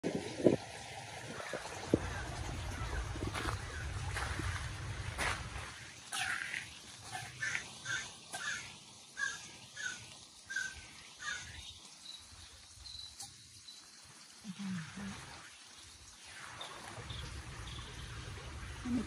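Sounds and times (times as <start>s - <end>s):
bird calling: 7.2s - 11.6s.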